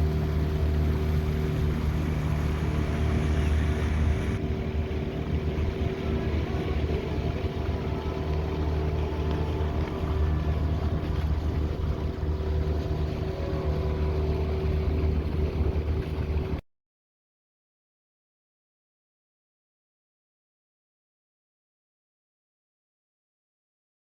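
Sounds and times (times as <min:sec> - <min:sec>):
motorboat engine running: 0:00.0 - 0:16.6
water noise: 0:00.0 - 0:16.6
wind noise: 0:01.3 - 0:13.3.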